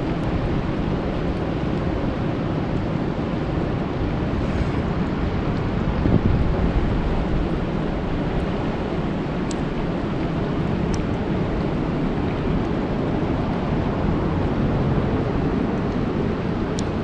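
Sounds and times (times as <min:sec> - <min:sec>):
deep rumble: 0:00.0 - 0:17.0
rain falling on a lake: 0:05.1 - 0:17.0.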